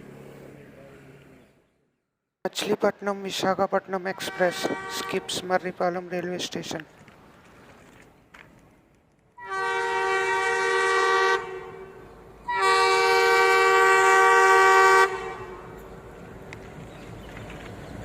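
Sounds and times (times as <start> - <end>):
locomotive horn blasts: 4.1 - 5.5, 9.4 - 15.8.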